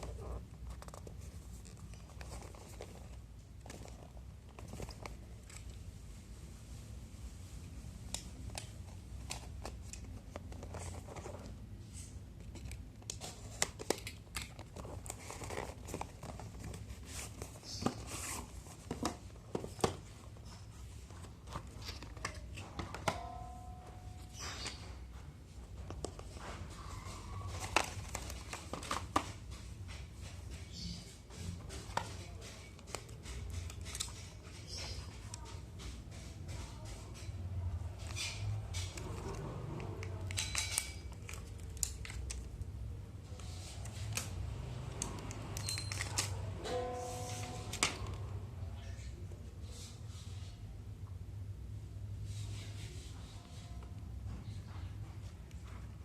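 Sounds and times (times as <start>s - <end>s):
plastic and paper crinkling: 0.0s - 6.3s, 8.4s - 23.3s, 24.3s - 29.9s, 38.0s - 48.4s
brief tone: 46.7s - 47.8s.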